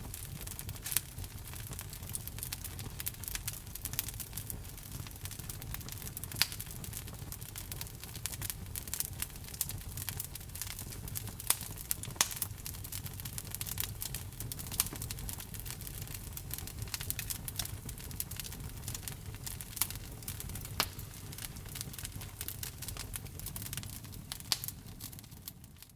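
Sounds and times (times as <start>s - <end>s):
fire popping: 0.0s - 25.9s
wood fire crackling: 0.0s - 25.9s.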